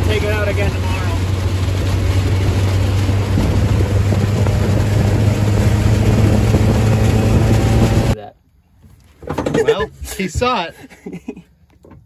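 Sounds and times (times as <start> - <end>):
car engine running: 0.0 - 8.2
wind and road noise: 0.0 - 10.8.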